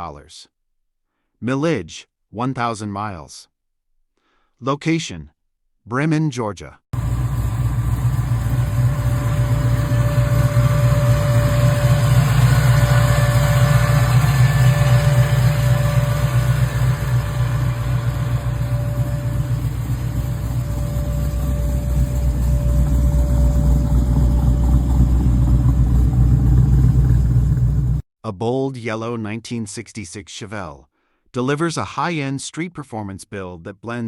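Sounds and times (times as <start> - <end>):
car engine idling: 7.0 - 28.0.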